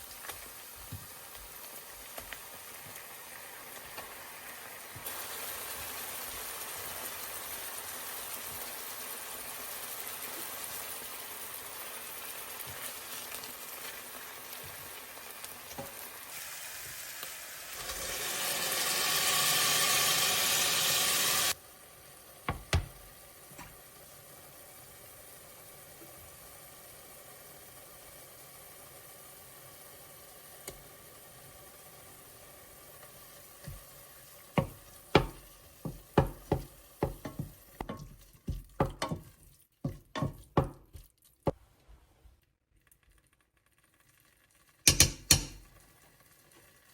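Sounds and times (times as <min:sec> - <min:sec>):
food sizzling in a pan: 0:00.0 - 0:41.6, 0:43.3 - 0:46.9
loud hiss: 0:16.3 - 0:21.6.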